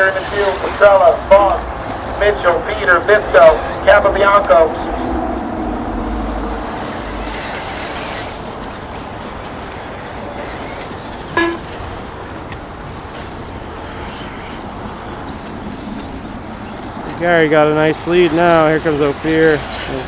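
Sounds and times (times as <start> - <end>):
electric rc buggies racing: 0.0 - 20.0
short electronic beep: 11.4 - 11.7.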